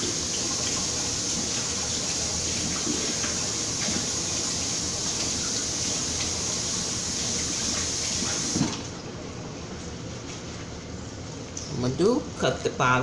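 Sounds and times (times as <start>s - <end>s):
kitchen tap running: 0.0s - 9.0s.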